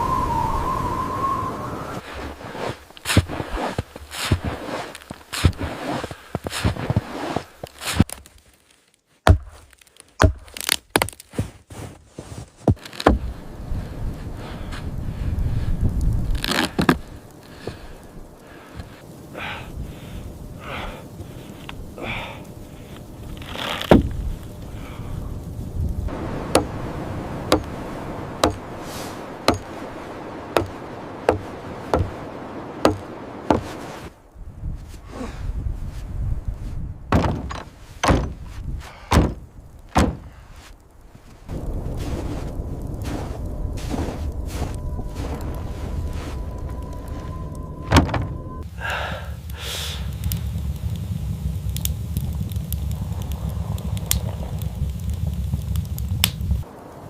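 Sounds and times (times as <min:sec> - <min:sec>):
steady rushing noise: 0:13.2 - 0:35.0, 0:40.6 - 0:57.0
tool striking wood: 0:32.8 - 0:33.7
wooden thunks and knocks: 0:32.8 - 0:33.7, 0:37.1 - 0:40.3.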